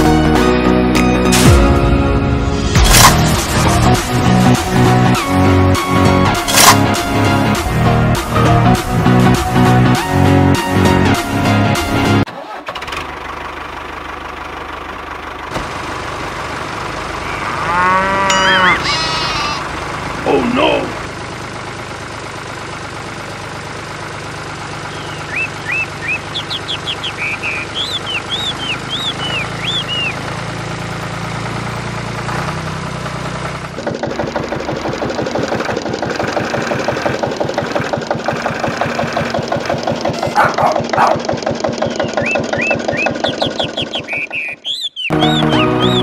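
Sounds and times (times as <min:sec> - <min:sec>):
tractor engine running: 0:00.0 - 0:46.0
short high chirps: 0:25.0 - 0:30.2.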